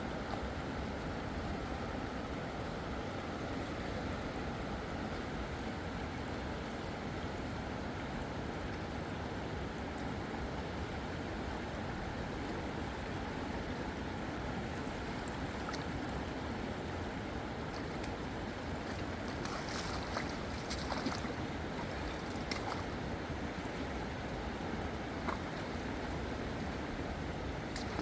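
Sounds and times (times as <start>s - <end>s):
rushing water: 0.0s - 28.0s
light splashes: 17.6s - 23.9s, 25.1s - 27.0s, 27.7s - 28.0s.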